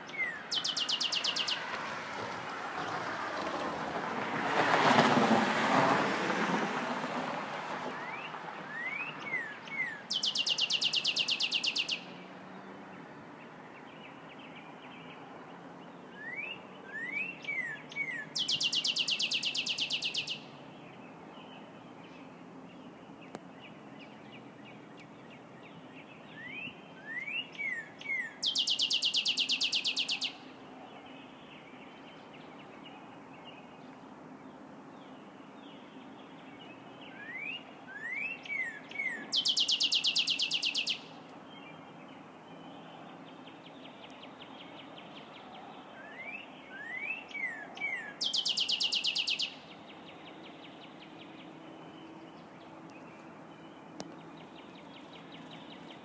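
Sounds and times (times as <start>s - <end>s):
songbird singing with trill: 0.0s - 1.8s, 8.0s - 56.0s.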